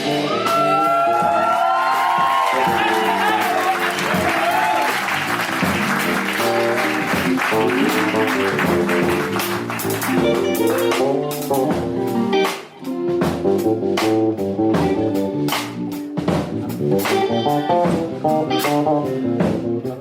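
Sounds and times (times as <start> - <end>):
guitar: 0.0 - 20.0
jazz band playing: 0.0 - 20.0.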